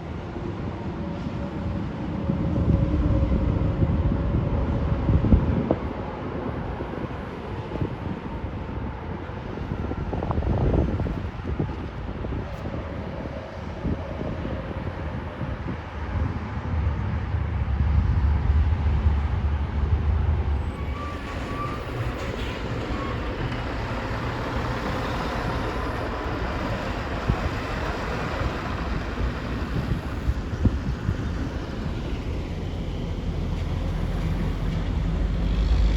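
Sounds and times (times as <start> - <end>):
heavy diesel machinery running: 16.6 - 35.9.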